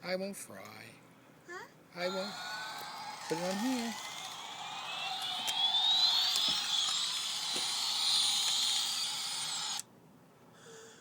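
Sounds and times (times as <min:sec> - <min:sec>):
toy helicopter rotor whirring: 0:02.0 - 0:09.8.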